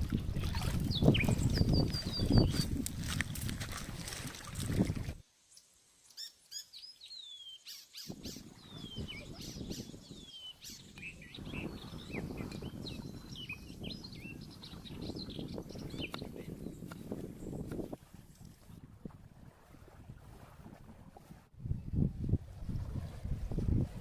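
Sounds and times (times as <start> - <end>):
birds chirping: 0.8 - 2.8, 5.6 - 17.8.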